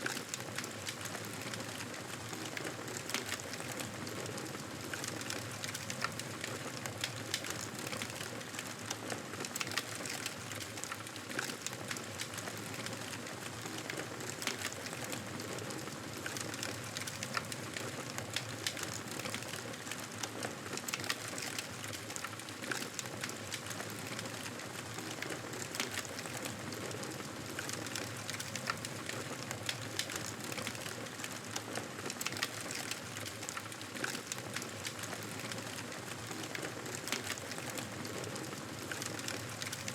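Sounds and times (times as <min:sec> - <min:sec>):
fire crackling: 0:20.9 - 0:39.9.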